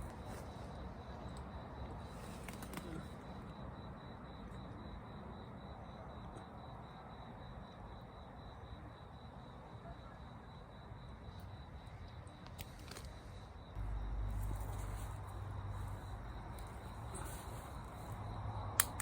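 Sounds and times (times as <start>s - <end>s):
high-pitched insect trill: 13.1s - 18.7s.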